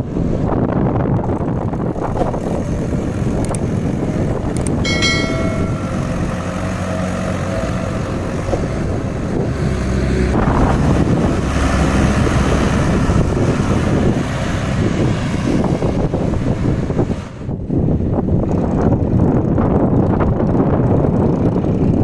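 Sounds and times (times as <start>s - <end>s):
diesel tractor engines running: 0.0s - 22.0s
wind buffeting microphone: 0.0s - 22.0s.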